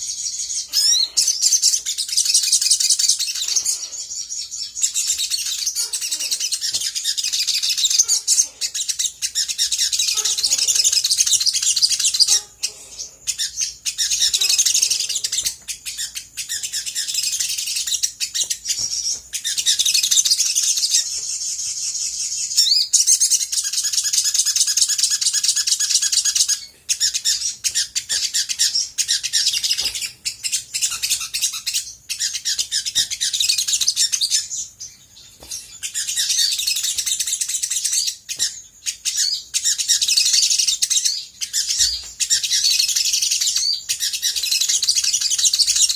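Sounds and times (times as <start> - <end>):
bird chattering twitter: 0.0 - 45.9.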